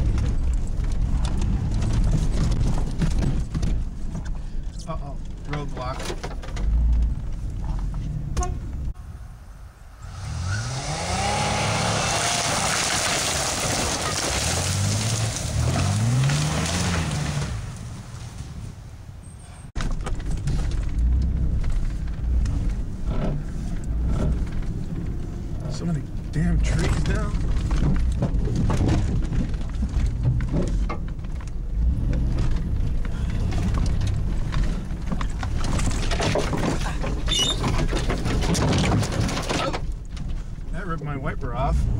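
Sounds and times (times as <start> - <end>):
low rumble with clicks: 0.0 - 9.1, 19.7 - 41.9
engine revving: 10.0 - 12.9, 14.6 - 17.7
clicks and knocks from truck: 26.7 - 40.5.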